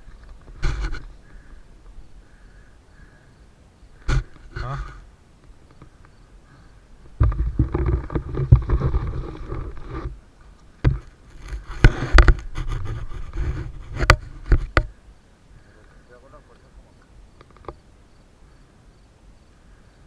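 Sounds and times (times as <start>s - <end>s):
bike knocking over bumps: 4.0s - 5.0s, 7.1s - 10.2s, 10.8s - 15.0s
mountain bike on dirt trail: 4.0s - 16.1s.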